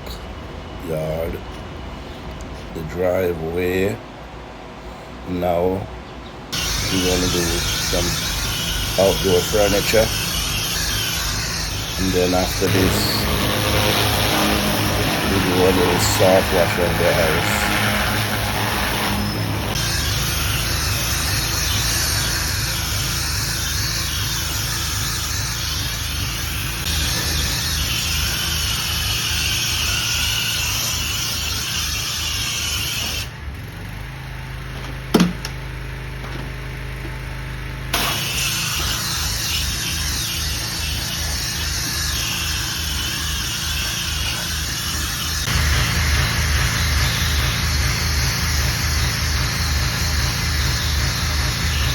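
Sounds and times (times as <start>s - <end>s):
pressure washer motor pulsing: 6.6s - 31.0s, 32.2s - 51.9s.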